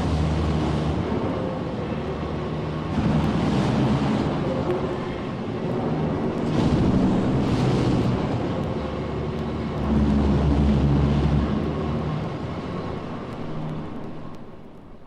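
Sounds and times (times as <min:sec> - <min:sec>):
mechanical rumble with tones: 0:00.0 - 0:15.0
vinyl surface ticks: 0:13.2 - 0:15.0.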